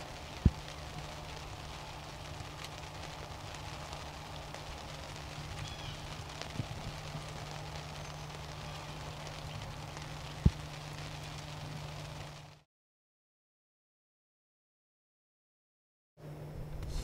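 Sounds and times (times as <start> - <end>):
low steady hum: 0.0 - 12.6, 16.2 - 17.0
rain hissing and pattering: 0.0 - 12.7.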